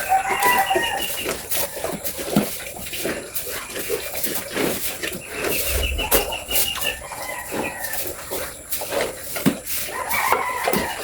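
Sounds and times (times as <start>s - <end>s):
high-pitched farm animal calls: 0.0s - 2.2s, 9.9s - 11.0s.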